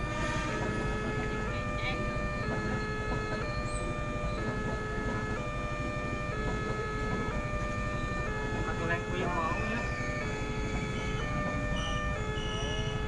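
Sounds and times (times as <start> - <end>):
level crossing two-tone alarm: 0.0 - 13.0.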